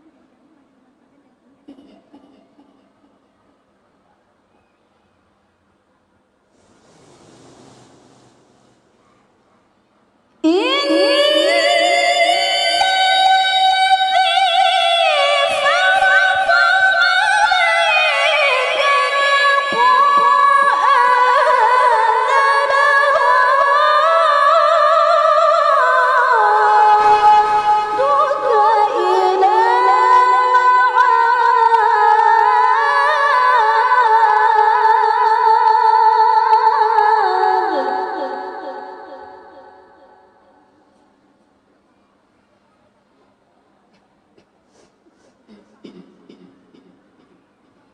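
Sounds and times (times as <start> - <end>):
woman reciting melodically: 10.4 - 41.0.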